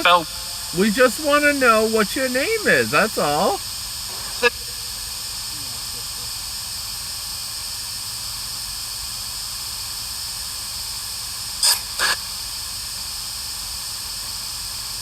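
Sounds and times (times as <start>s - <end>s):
radio static hiss: 0.0s - 6.5s, 11.6s - 12.4s.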